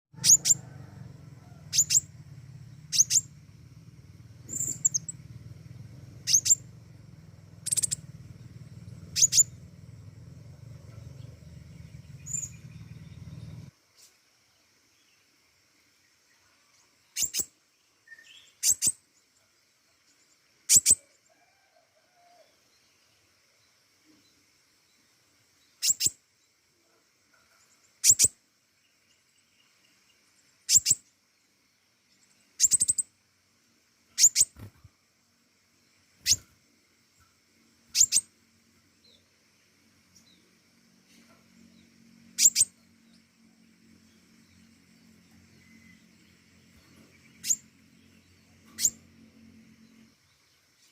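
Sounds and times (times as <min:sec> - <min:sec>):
bird chirping high: 0:00.2 - 0:00.8, 0:01.6 - 0:02.1, 0:02.7 - 0:03.4, 0:04.4 - 0:05.2, 0:06.1 - 0:06.7, 0:07.5 - 0:08.1, 0:08.9 - 0:09.7, 0:11.0 - 0:13.7, 0:17.2 - 0:17.5, 0:18.1 - 0:19.0, 0:20.7 - 0:21.0, 0:25.8 - 0:26.2, 0:28.0 - 0:28.4, 0:30.7 - 0:31.1, 0:32.6 - 0:33.1, 0:34.2 - 0:34.8, 0:36.2 - 0:36.5, 0:37.9 - 0:38.3, 0:42.3 - 0:42.8, 0:46.9 - 0:49.1
low hum: 0:00.2 - 0:13.7.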